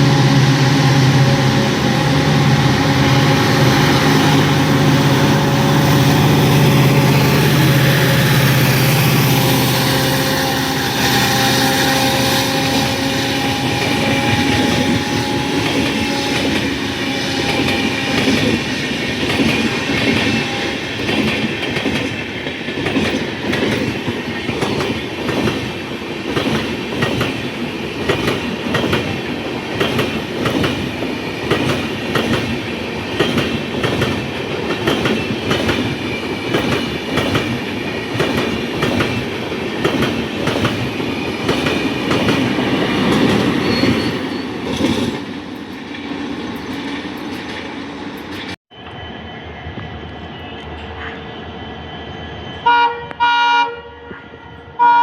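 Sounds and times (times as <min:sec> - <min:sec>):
wheel on rail squeal: 0:00.0 - 0:21.1, 0:34.9 - 0:47.6, 0:48.2 - 0:54.8
train wheels clattering: 0:02.0 - 0:48.6.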